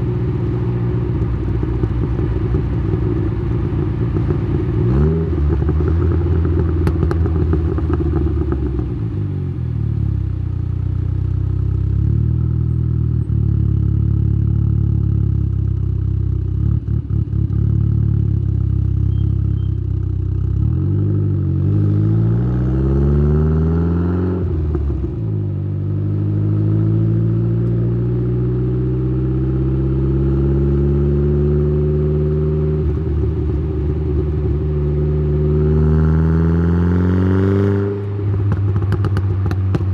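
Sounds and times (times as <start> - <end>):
car exhaust while driving: 0.0 - 39.9.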